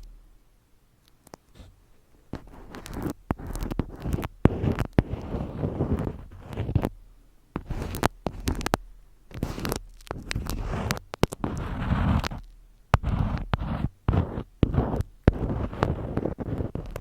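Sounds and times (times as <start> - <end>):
sharp clicks and crackles: 1.0 - 1.6, 2.3 - 6.9, 7.6 - 17.0
rough scratching or rustling: 1.5 - 7.0, 7.6 - 17.0.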